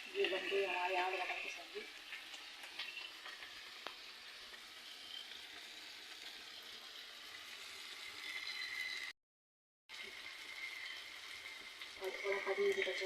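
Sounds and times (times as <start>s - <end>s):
curry sizzling in a pan: 0.0s - 9.2s, 9.9s - 13.0s.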